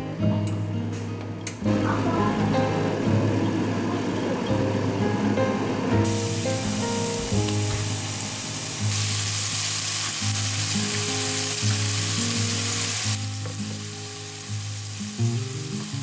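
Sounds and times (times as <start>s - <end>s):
background music: 0.0s - 16.0s
beef patties sizzling in a skillet: 6.0s - 16.0s.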